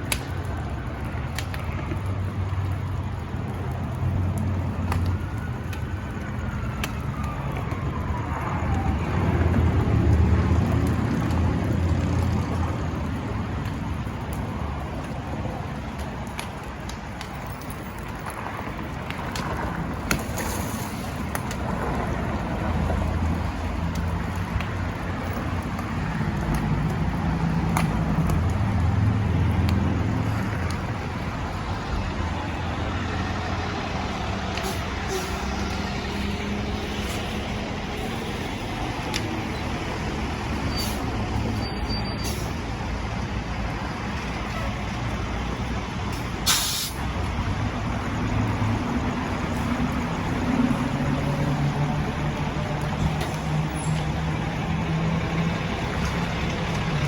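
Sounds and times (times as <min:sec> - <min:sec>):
steady hiss: 0:46.1 - 0:47.1
sharp burst of hiss: 0:46.4 - 0:47.0.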